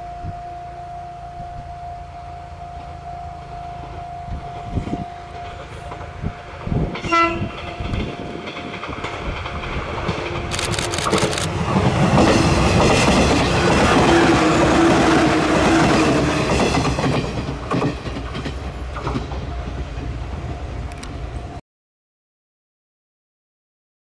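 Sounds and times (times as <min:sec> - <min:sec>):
train rumble: 0:02.6 - 0:21.6
train horn blast: 0:04.3 - 0:07.7
wheels clacking over rail joints: 0:04.6 - 0:21.2.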